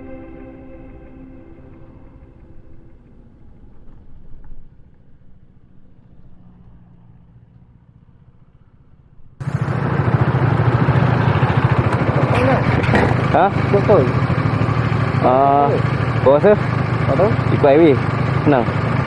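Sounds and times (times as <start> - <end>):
motorcycle exhaust pulsing: 9.4 - 19.0.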